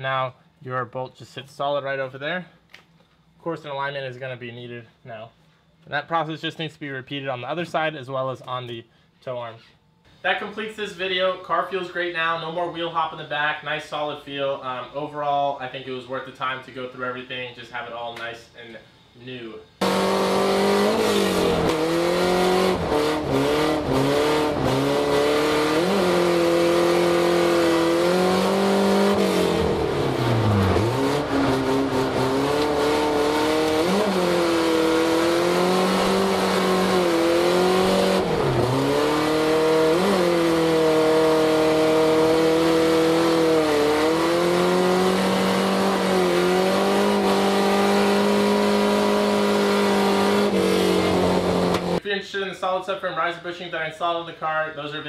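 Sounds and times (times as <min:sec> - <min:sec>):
car engine revving: 0:19.8 - 0:52.0.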